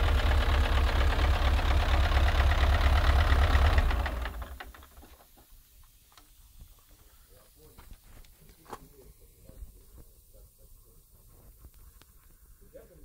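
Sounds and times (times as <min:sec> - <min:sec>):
diesel engine idling: 0:00.0 - 0:05.1
faint clicks: 0:11.6 - 0:12.4.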